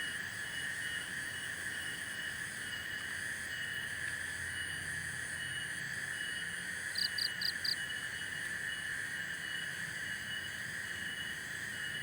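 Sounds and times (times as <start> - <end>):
crickets and insects trilling: 2.7 - 12.0.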